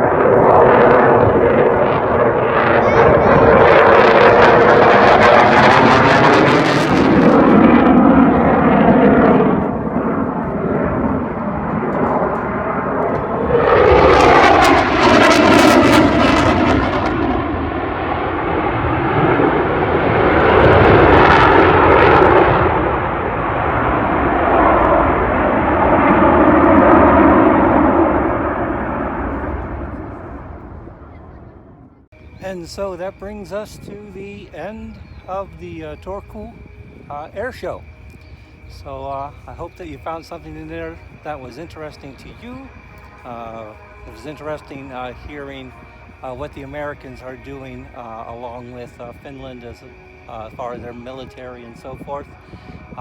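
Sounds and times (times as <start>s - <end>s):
aircraft engines passing: 0.0s - 53.0s.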